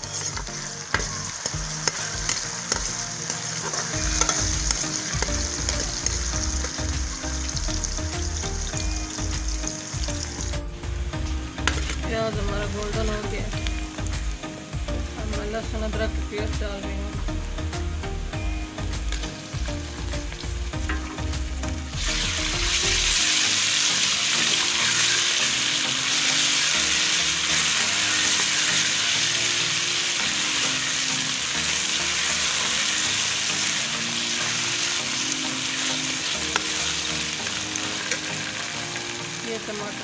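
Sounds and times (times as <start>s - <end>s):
ladle stirring: 0.0s - 7.0s
onions sizzling in hot oil: 0.0s - 40.0s.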